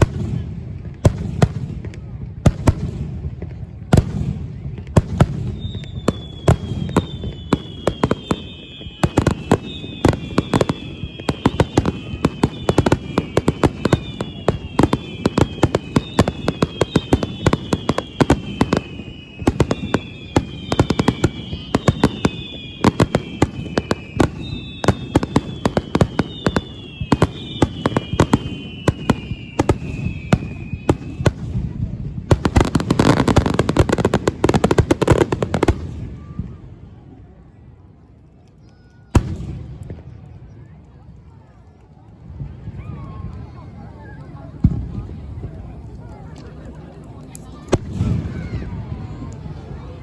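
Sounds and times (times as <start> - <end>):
fireworks bangs and crackles: 0.0 - 50.0
falling firework whistles: 4.1 - 36.6.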